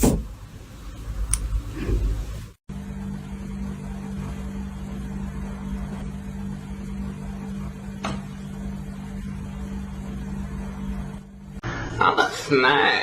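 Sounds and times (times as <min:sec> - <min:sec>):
low mechanical hum: 0:00.0 - 0:11.9.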